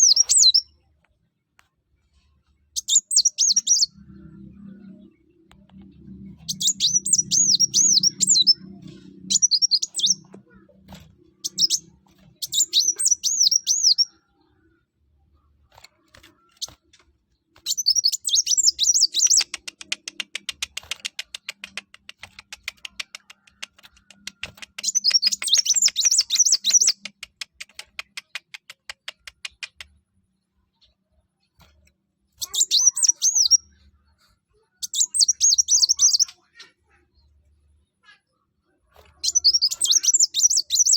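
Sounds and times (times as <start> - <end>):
bird twittering: 0.0 - 0.7, 2.8 - 5.2, 6.4 - 14.2, 17.6 - 19.8, 24.3 - 27.1, 32.4 - 33.8, 34.8 - 36.4, 39.1 - 40.9.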